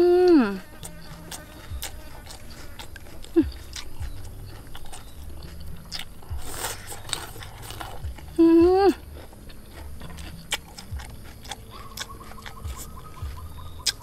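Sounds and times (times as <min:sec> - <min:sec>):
person humming mmm: 0:00.0 - 0:14.0
close-up chewing: 0:00.5 - 0:14.0
soft low thuds: 0:05.2 - 0:09.2, 0:12.5 - 0:13.8.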